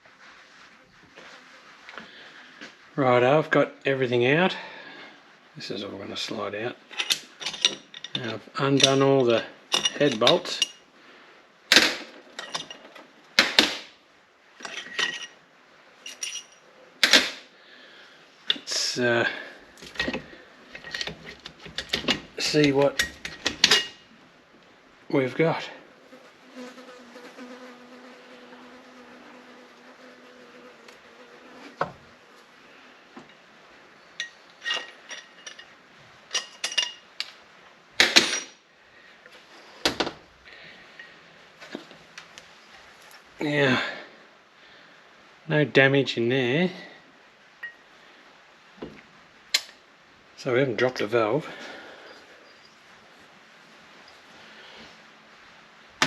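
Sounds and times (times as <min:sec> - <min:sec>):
metal tools clinking: 0:06.9 - 0:10.8, 0:12.3 - 0:13.0, 0:14.6 - 0:15.4, 0:16.0 - 0:16.7, 0:19.8 - 0:24.0, 0:34.1 - 0:37.1
metallic clinks of tools: 0:16.1 - 0:16.6.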